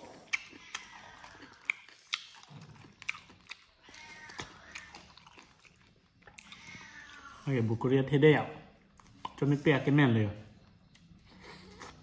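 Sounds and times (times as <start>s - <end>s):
person chewing and biting food: 0.0s - 6.8s, 10.7s - 12.0s
wet mouth clicks and smacks: 0.1s - 3.7s.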